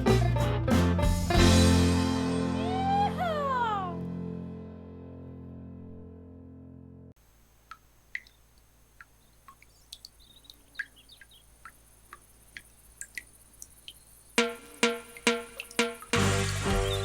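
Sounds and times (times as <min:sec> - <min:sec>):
high chirps: 0:09.5 - 0:11.8, 0:13.0 - 0:17.0.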